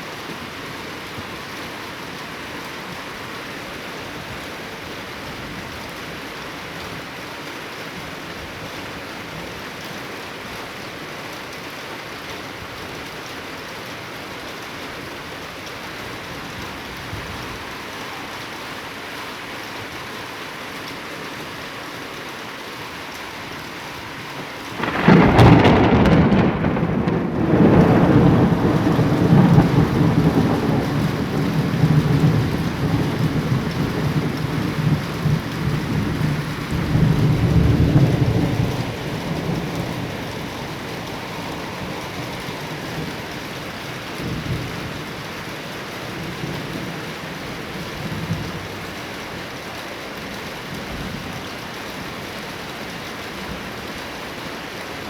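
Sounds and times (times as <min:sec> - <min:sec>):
steady rain: 0:00.0 - 0:55.0
thunder crack and rumble: 0:24.8 - 0:43.1.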